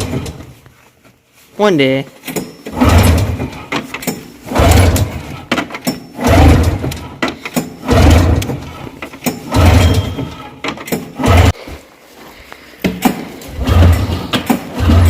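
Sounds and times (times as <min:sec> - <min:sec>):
engine cranking with recoil starter: 0:00.0 - 0:00.6, 0:02.2 - 0:11.6, 0:13.0 - 0:15.0.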